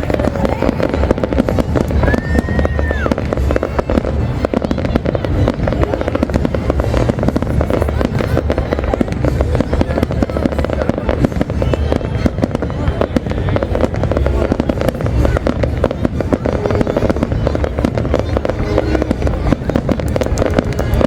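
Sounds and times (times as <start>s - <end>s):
high firework whistle: 0.0s - 9.2s
fireworks bangs and crackles: 0.0s - 21.0s.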